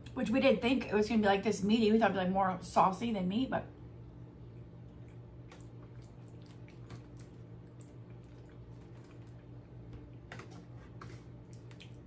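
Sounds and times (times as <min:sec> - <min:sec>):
low steady hum: 0:00.0 - 0:12.0
person chewing pasta: 0:04.0 - 0:12.0.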